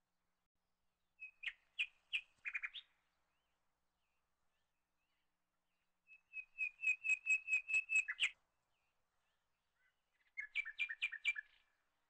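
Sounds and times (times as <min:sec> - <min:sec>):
bird singing high chirps: 0:01.2 - 0:03.0, 0:06.1 - 0:08.4, 0:09.8 - 0:11.6.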